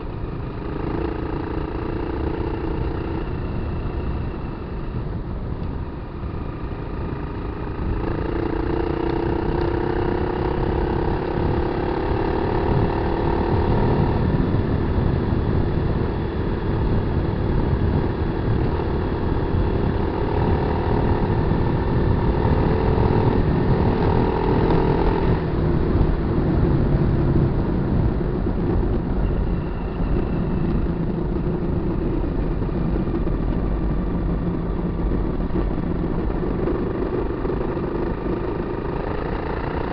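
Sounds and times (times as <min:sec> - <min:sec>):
motorcycle engine running: 0:00.0 - 0:39.9
heavy low rumble: 0:12.5 - 0:39.4.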